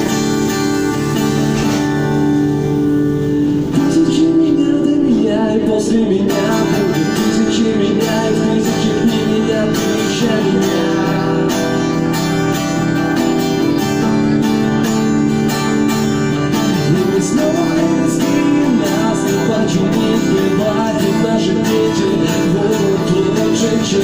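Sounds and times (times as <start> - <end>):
acoustic guitar strumming chords: 0.0 - 24.0
person singing: 3.6 - 12.4, 16.5 - 24.0.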